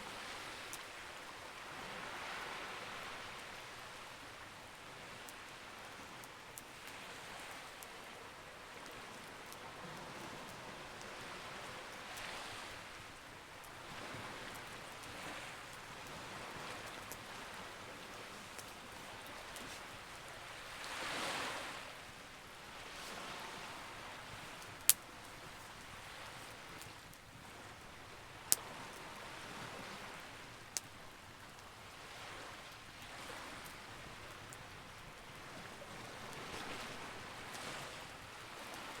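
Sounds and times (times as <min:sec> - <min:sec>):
campfire crackling: 0:00.0 - 0:39.0
sea waves washing in: 0:09.7 - 0:30.5.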